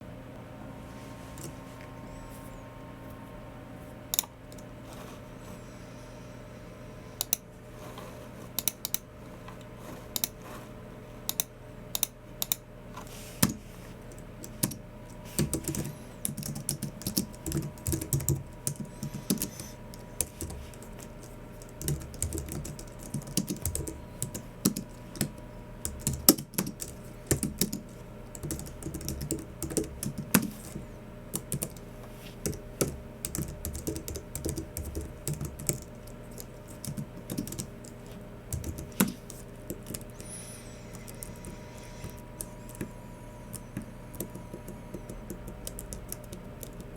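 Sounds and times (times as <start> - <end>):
keyboard typing: 13.4 - 46.9.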